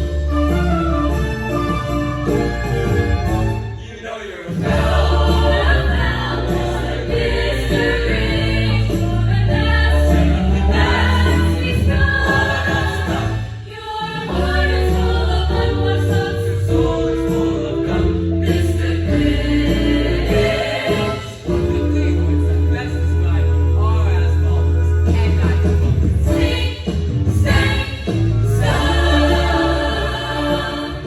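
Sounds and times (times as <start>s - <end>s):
instrumental accompaniment: 0.0s - 13.7s, 14.3s - 31.0s
school choir singing: 4.4s - 21.5s, 26.3s - 31.0s.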